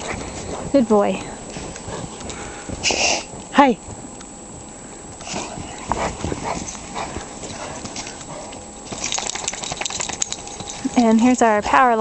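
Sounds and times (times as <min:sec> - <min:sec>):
footsteps crunching through snow: 0:00.0 - 0:09.0.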